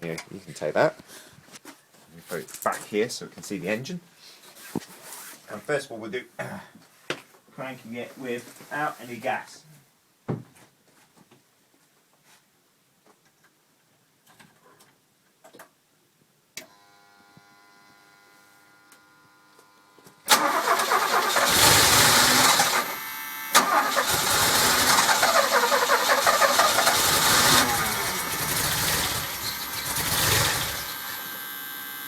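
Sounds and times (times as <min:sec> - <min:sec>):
engine starter cranking: 0:20.3 - 0:31.4.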